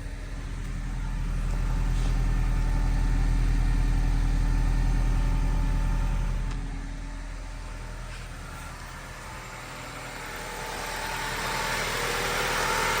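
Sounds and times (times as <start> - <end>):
car engine idling through exhaust: 0.0 - 13.0.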